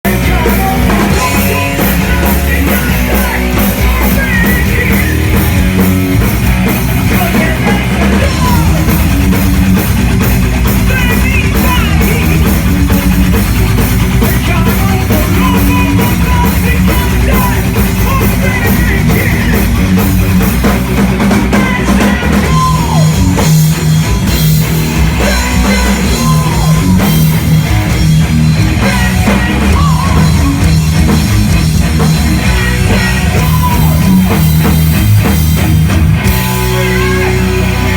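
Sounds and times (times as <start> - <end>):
drum kit beat: 0.0 - 37.9
rock band playing live: 0.0 - 37.9.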